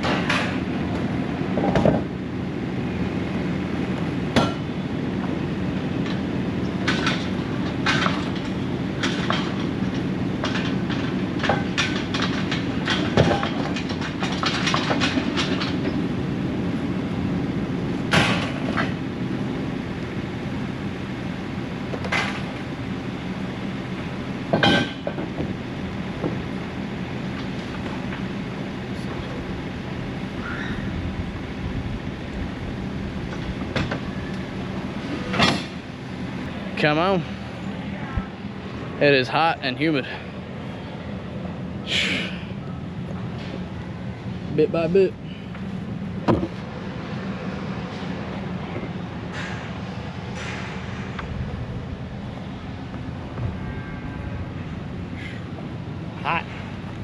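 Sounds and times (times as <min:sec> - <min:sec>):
engine running: 0:00.0 - 0:57.0
metal clanks and knocks: 0:06.8 - 0:16.0, 0:24.5 - 0:25.5, 0:49.3 - 0:51.2.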